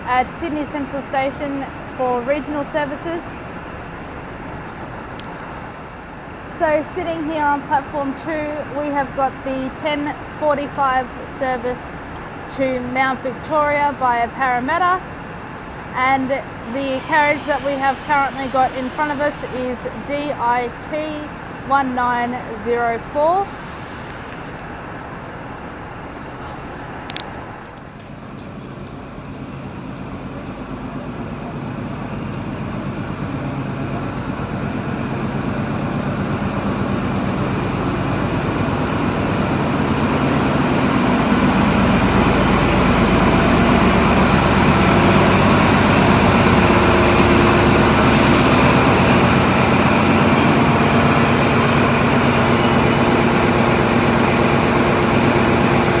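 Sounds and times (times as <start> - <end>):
electric train humming: 0.0 - 27.2, 28.6 - 56.0
air hiss: 16.6 - 19.7, 23.4 - 26.5, 48.0 - 48.8.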